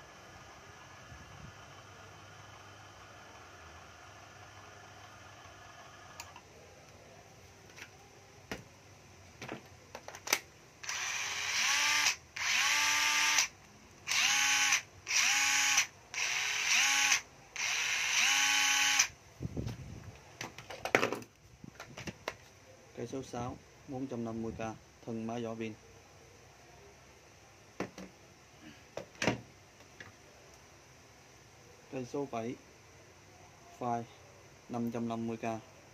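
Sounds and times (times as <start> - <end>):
cordless drill whining: 10.8 - 13.5, 14.1 - 19.1.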